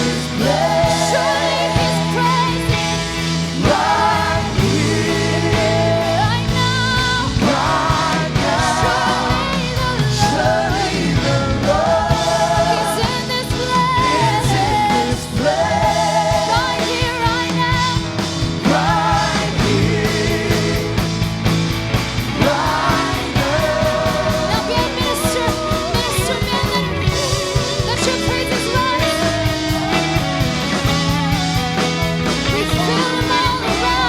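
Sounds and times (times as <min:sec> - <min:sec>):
guitars: 0:00.0 - 0:34.0
steady drum beat: 0:00.0 - 0:34.0
person singing: 0:22.3 - 0:30.8, 0:32.5 - 0:34.0.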